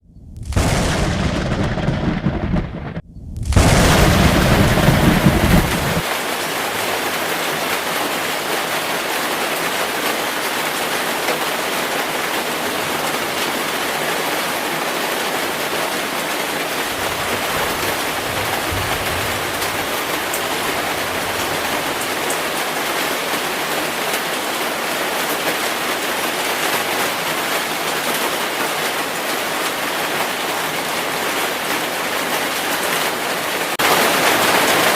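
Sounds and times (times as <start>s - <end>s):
thunder rumbling: 0.0s - 6.1s, 16.1s - 23.6s
heavy rain falling: 0.4s - 34.9s.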